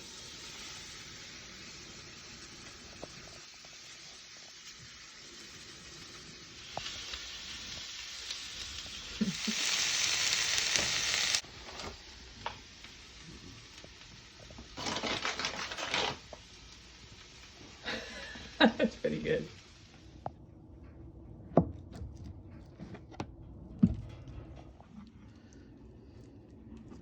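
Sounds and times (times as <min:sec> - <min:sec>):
food sizzling in a frying pan: 0:00.0 - 0:20.3
scraping in a pan: 0:14.4 - 0:16.6.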